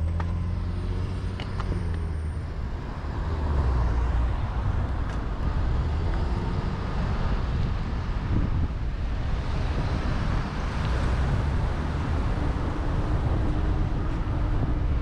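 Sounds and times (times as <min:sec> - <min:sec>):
wind buffeting microphone: 0:03.9 - 0:15.0.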